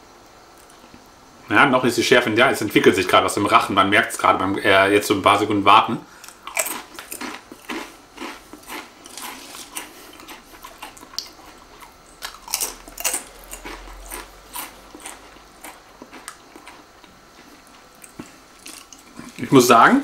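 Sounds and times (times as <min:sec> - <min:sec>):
person crunching crisps: 0:06.2 - 0:19.5.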